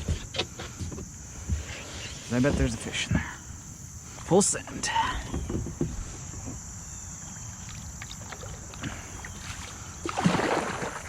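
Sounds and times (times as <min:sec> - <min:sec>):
water and wind against hull: 0:00.0 - 0:11.0
light knocks on kayak: 0:05.1 - 0:06.7.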